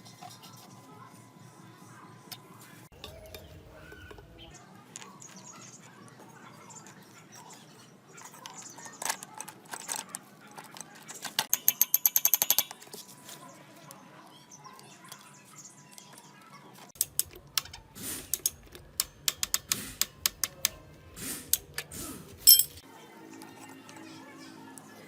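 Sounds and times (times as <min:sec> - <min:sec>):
metal parts knocking and clicking: 0:08.9 - 0:13.0, 0:17.0 - 0:20.8, 0:22.4 - 0:22.8
rapid metallic ratcheting: 0:11.3 - 0:12.9.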